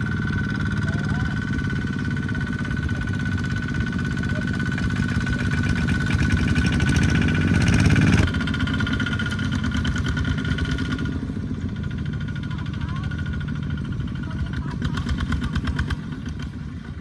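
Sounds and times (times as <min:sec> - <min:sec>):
tractor engine running: 0:01.4 - 0:10.0.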